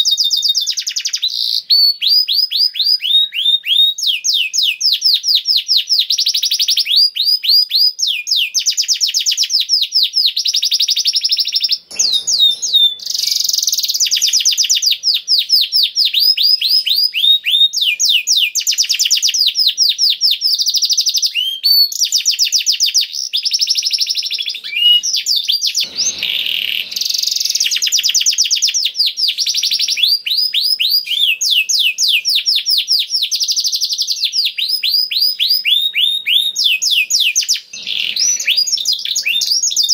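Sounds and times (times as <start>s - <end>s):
canary singing trills: 10.4s - 39.9s.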